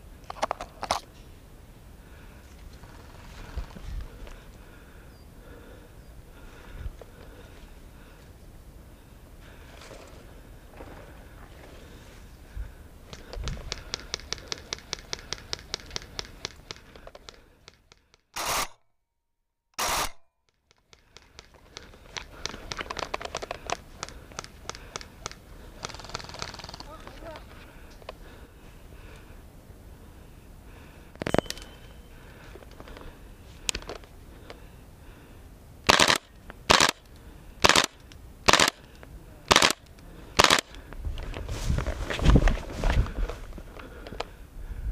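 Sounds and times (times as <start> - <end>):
sharp clicks: 13.1 - 18.8, 19.8 - 28.2, 35.9 - 41.0
airsoft rifle rapid bursts: 13.7 - 16.9, 18.4 - 18.8, 19.8 - 20.2, 21.2 - 27.4, 35.8 - 38.9, 39.5 - 40.8
airsoft rifle single cracks: 35.9 - 37.0, 37.6 - 38.8, 39.5 - 39.8, 40.4 - 40.7.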